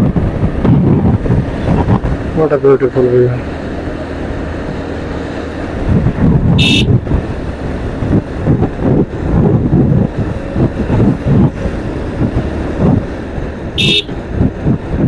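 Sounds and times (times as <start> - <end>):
wind buffeting microphone: 0.0 - 15.0
short high beep: 6.6 - 6.9, 13.8 - 14.1.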